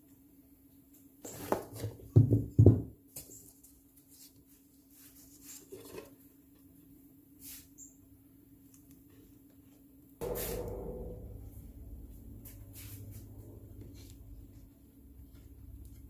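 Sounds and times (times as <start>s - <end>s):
heavy knocks: 10.2s - 14.6s
roller rumbling clatter: 10.2s - 16.0s.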